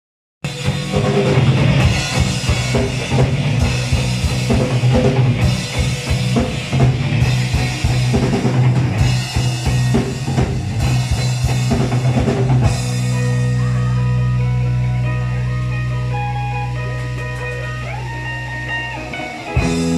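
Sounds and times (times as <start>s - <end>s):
drum kit beating: 0.4s - 19.9s
rock band playing: 0.4s - 19.9s
sustained bass line: 0.5s - 19.9s.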